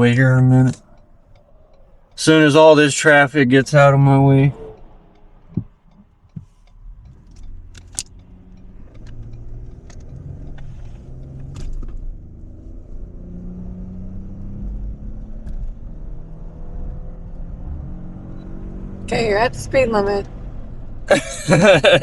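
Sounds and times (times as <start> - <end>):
car engine accelerating: 0.0 - 22.0
road noise: 0.0 - 22.0
sharp clicks: 4.5 - 12.5.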